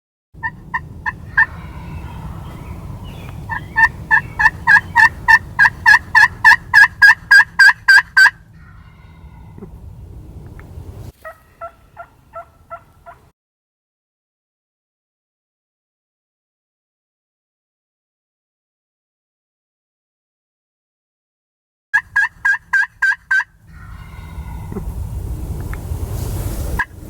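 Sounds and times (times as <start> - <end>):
wild turkey calling: 0.4 - 10.1, 11.2 - 13.3, 22.0 - 25.2.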